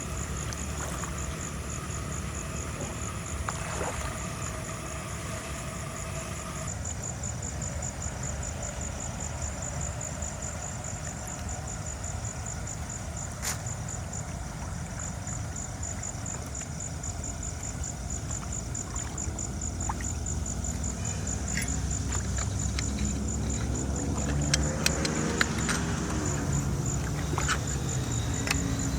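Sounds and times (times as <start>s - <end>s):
low engine rumble: 0.0s - 28.9s
scattered clicks: 20.6s - 28.9s.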